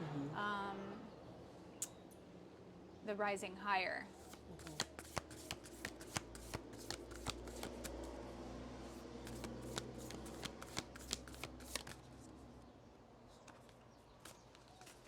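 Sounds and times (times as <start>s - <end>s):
cards being shuffled: 4.2s - 8.2s, 8.8s - 12.2s, 13.4s - 15.0s.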